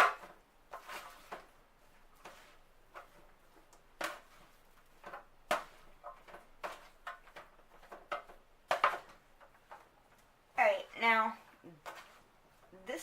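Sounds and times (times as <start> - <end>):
utensil knocking and scraping a pan: 0.0 - 13.0.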